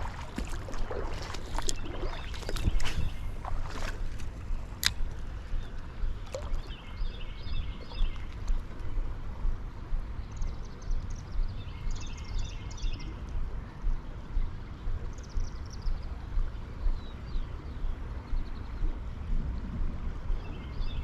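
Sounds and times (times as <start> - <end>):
creek water flowing: 0.0 - 21.0
wind rumble on microphone: 0.0 - 21.0.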